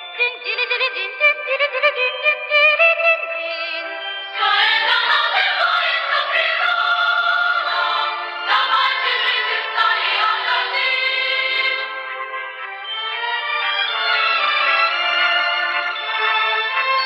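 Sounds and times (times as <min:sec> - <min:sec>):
choir singing with instruments: 0:04.3 - 0:13.0.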